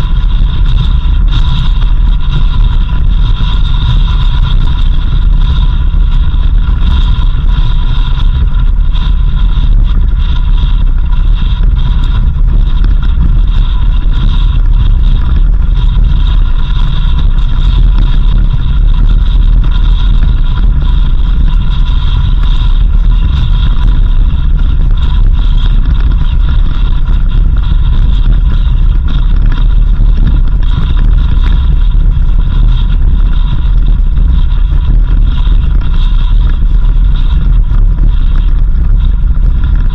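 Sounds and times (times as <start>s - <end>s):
high whine: 0.0s - 39.9s.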